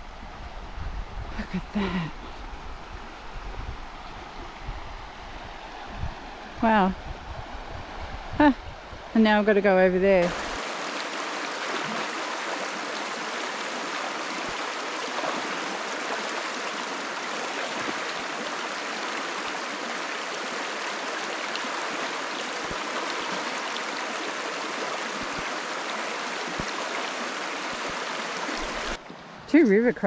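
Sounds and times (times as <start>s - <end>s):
river flowing over rocks: 10.2s - 29.5s.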